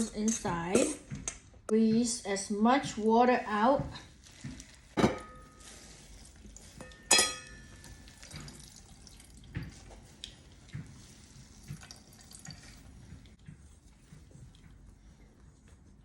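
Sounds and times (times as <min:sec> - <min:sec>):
water dripping into a bowl: 0:06.4 - 0:13.4.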